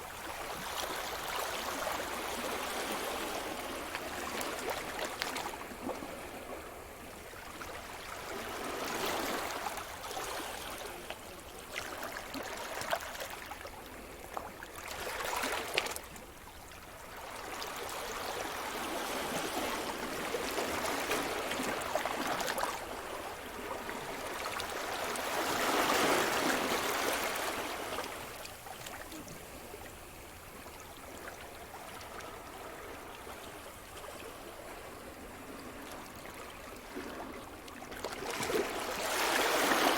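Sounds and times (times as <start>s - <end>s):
waves breaking on shore: 17.4s - 30.2s, 32.0s - 39.9s.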